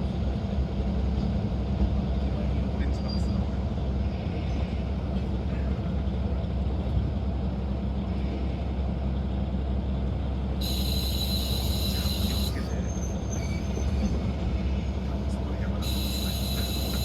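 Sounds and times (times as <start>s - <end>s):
diesel railcar engine drone: 0.0s - 17.0s
high steady squeal: 10.6s - 14.0s, 15.8s - 17.0s.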